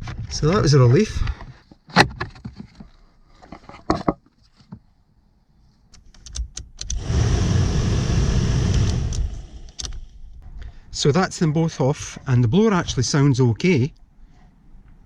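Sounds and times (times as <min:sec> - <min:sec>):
clicks and knocks of handling: 0:01.2 - 0:04.9
heater blower motor whirring: 0:06.9 - 0:10.0.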